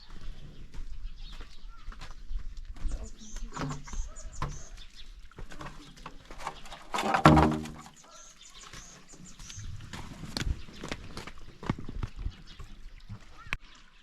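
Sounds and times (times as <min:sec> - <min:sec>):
small birds chirping: 0:00.0 - 0:07.0, 0:07.8 - 0:14.0.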